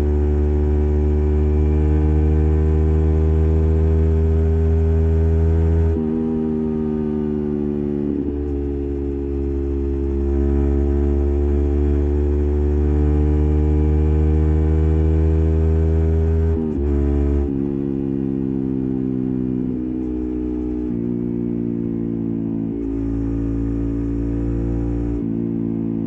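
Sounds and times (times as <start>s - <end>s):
motorcycle engine riding: 0.0s - 26.0s.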